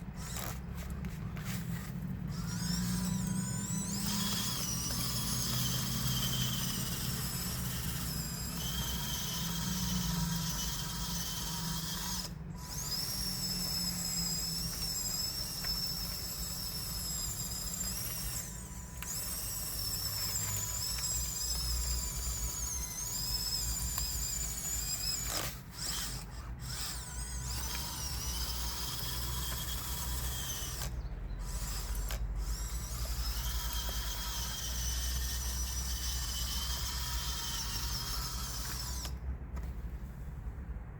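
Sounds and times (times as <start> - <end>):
toy bulldozer motors whining: 0.0 - 40.4.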